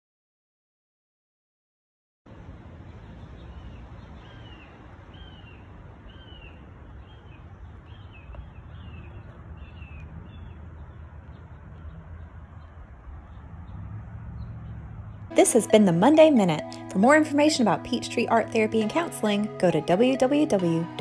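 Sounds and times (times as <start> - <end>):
bird calling: 3.5 - 13.8.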